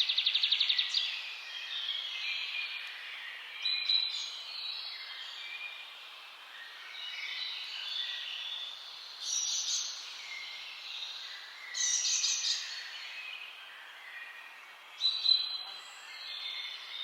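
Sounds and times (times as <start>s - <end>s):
songbirds singing and chirping: 0.0s - 17.0s
steady background hiss: 0.0s - 17.0s.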